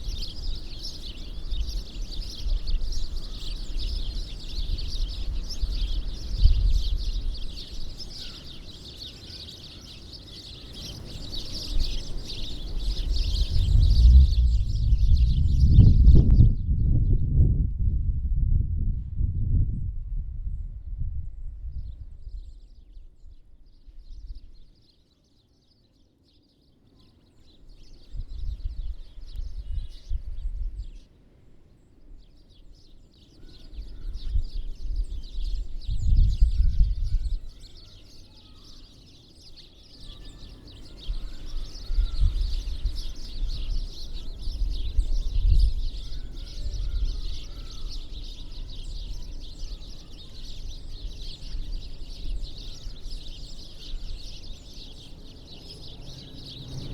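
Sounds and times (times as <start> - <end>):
small birds chirping: 0.0 - 17.2, 21.7 - 56.9
low rumbles: 12.9 - 22.2.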